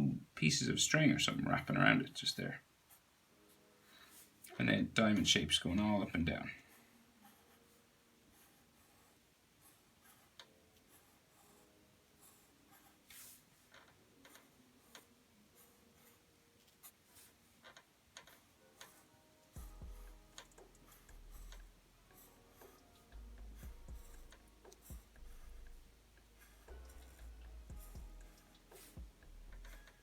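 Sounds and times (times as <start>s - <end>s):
pencil scratching on paper: 6.6s - 17.6s, 18.2s - 30.0s.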